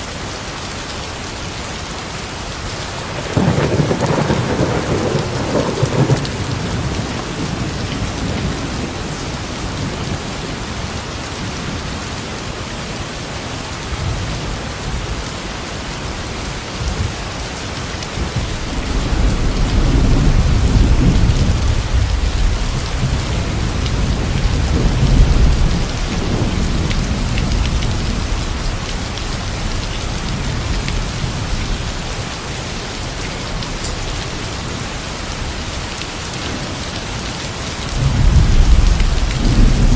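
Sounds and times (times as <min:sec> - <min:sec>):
steady rain falling: 0:00.0 - 0:39.9
low rumble of thunder: 0:03.1 - 0:11.8, 0:18.2 - 0:32.4, 0:36.3 - 0:39.9.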